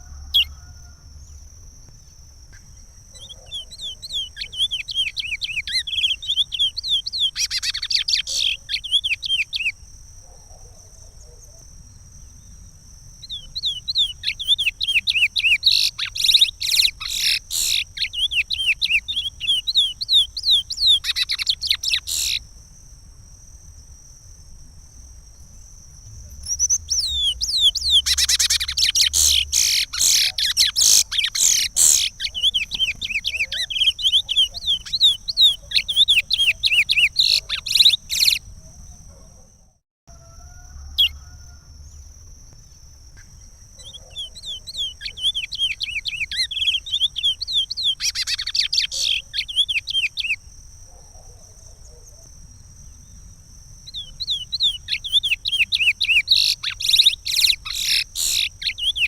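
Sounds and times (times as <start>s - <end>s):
finch singing whistled trills: 3.2s - 9.8s, 13.2s - 22.4s, 26.4s - 38.4s, 43.8s - 50.4s, 53.9s - 59.0s.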